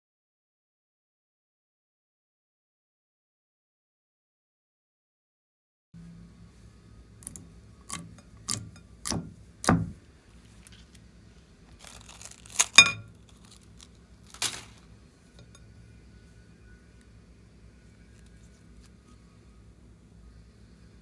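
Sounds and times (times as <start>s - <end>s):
slime crackling and snapping: 11.8s - 14.8s.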